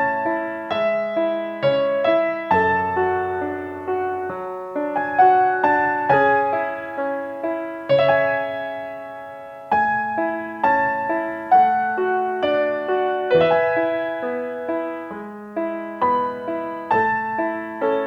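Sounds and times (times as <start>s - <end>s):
soft solo piano: 0.0s - 18.0s.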